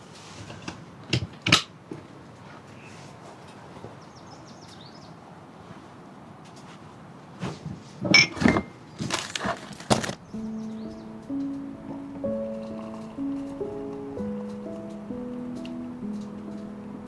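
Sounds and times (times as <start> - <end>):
wooden knocks and cracks: 8.3 - 10.3
faint steady hiss: 10.2 - 17.0
music: 10.3 - 17.0.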